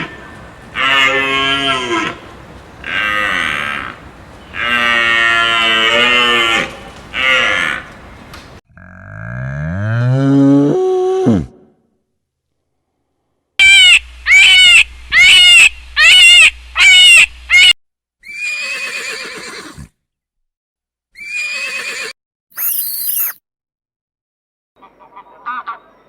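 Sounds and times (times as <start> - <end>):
farm animal cries: 0.0 - 7.9, 13.6 - 19.8, 21.2 - 22.8.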